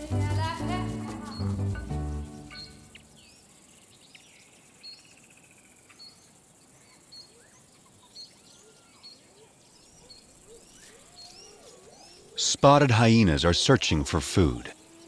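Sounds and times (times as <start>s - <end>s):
bird trill: 0.0s - 13.4s
quiet outdoor ambience: 0.0s - 15.0s
high bird chirp: 0.2s - 5.2s.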